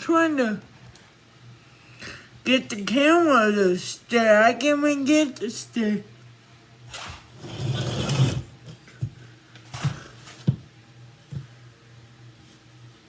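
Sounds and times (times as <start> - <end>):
low steady hum: 0.0 - 13.0
rustling scrape: 6.9 - 8.6.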